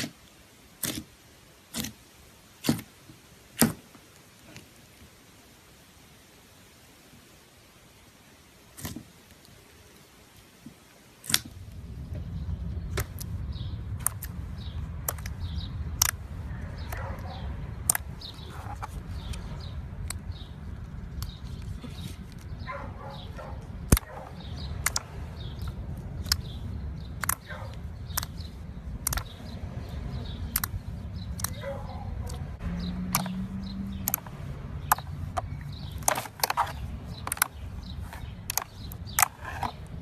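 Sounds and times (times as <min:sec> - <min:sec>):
low rumble: 0:11.5 - 0:35.9
slime popping and squelching: 0:12.8 - 0:17.0.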